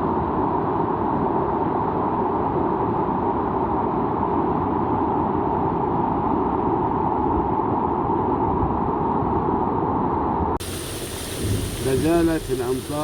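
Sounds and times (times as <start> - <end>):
heavy rain: 10.6 - 13.0
low rumble: 10.6 - 13.0.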